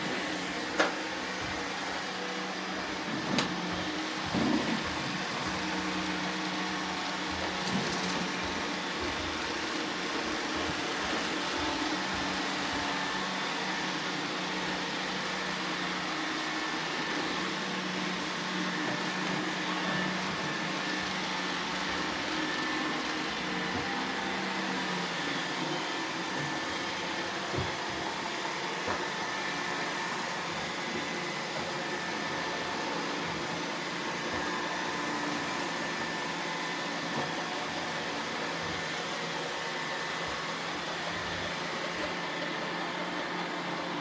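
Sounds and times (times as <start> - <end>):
robot vacuum whirring: 0.0 - 44.0.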